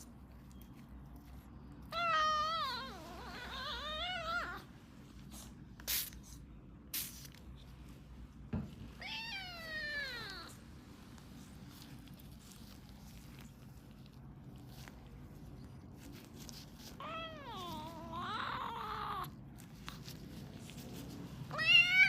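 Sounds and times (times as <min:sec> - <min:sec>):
kitten meowing: 0:09.0 - 0:10.6, 0:17.0 - 0:19.4, 0:21.5 - 0:22.0.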